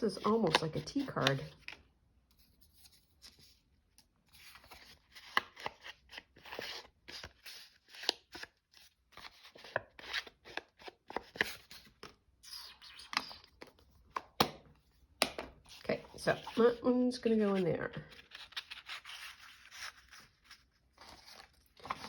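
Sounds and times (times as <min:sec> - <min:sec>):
paper rustling and scraping: 0:15.7 - 0:22.0.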